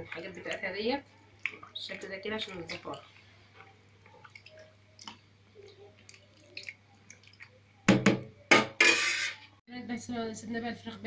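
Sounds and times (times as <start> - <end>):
drips: 0.0 - 7.8.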